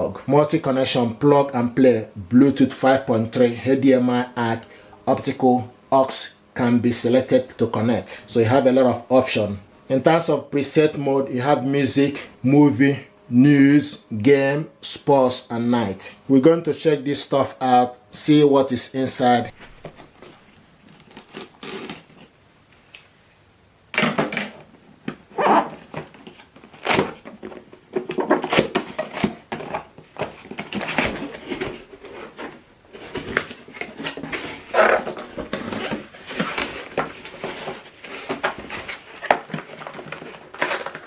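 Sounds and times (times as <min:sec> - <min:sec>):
cardboard box being unpacked: 0:19.7 - 0:22.4, 0:25.4 - 0:41.0.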